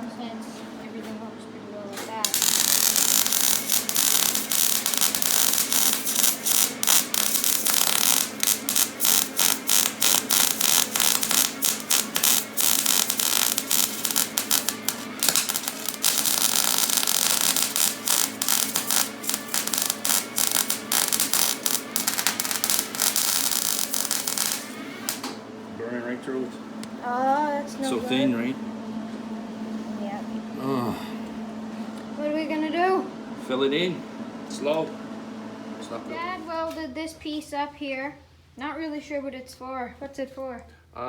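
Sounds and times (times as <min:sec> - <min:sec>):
arc welding crackling hiss: 0:02.2 - 0:25.4.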